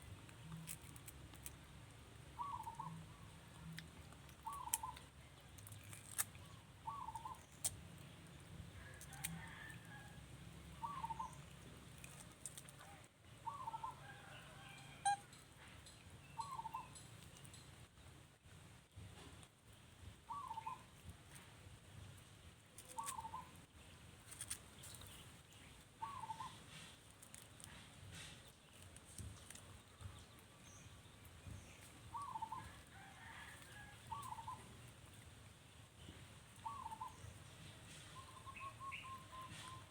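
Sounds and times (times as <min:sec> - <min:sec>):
bird calling: 0:02.4 - 0:03.3, 0:04.4 - 0:05.1, 0:06.4 - 0:07.6, 0:10.8 - 0:15.4, 0:16.2 - 0:17.0, 0:20.3 - 0:20.9, 0:22.8 - 0:23.5, 0:26.0 - 0:26.9, 0:29.9 - 0:34.8, 0:36.0 - 0:39.9.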